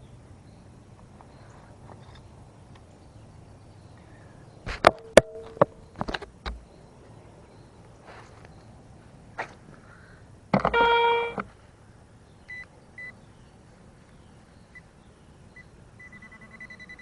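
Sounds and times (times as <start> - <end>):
short low tone: 10.7 - 11.5.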